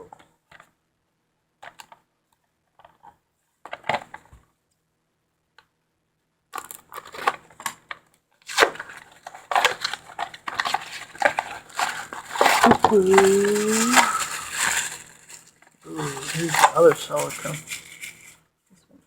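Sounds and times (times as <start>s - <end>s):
packaging crackling rustle: 8.5s - 18.4s.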